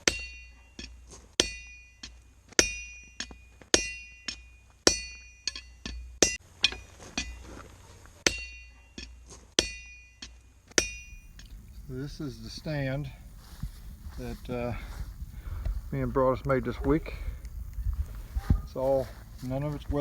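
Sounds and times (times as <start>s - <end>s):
hammer striking steel anvil: 0.0s - 7.3s, 8.3s - 11.2s
low steady hum: 10.8s - 20.0s.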